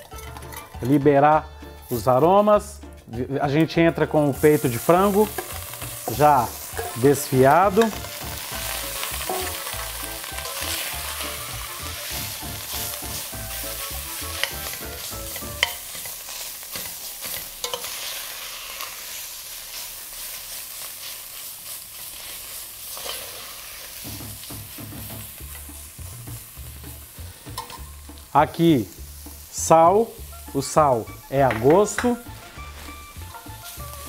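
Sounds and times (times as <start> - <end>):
chicken sizzling in hot oil: 4.0 - 34.0
metal spoon clinking on pot: 15.4 - 18.0, 27.6 - 27.9.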